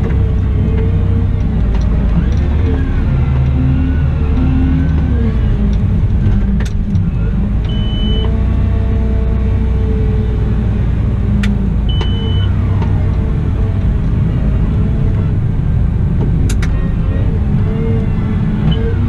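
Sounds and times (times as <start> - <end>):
wheel loader diesel engine: 0.0 - 19.0
short high beep: 7.7 - 8.3.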